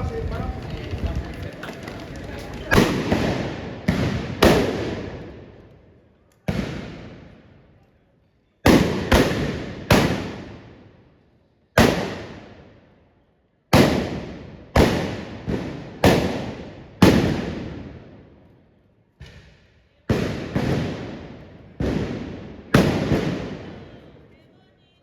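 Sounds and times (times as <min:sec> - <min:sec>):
blunderbuss blasts echoing: 0:00.0 - 0:05.2.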